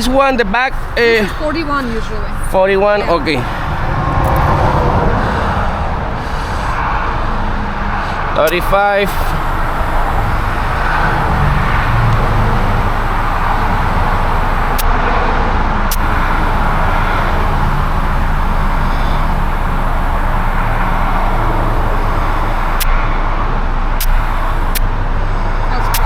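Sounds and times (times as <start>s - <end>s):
sharp clicks: 0.0s - 5.6s, 8.4s - 15.0s, 15.9s - 23.0s, 23.9s - 25.0s
traffic: 0.0s - 26.0s
vehicle running hum: 0.0s - 26.0s.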